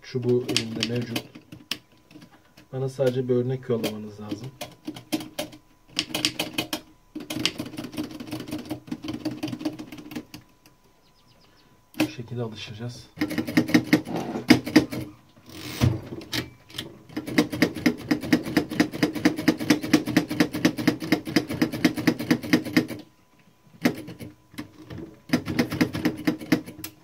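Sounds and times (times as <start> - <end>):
typewriter keys clacking: 0.4 - 2.2, 4.6 - 10.2, 25.3 - 26.8.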